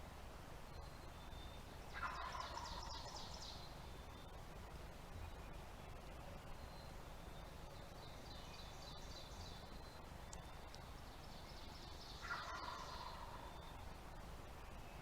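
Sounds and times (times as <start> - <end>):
turkey gobbling: 1.9 - 3.1, 12.2 - 13.5.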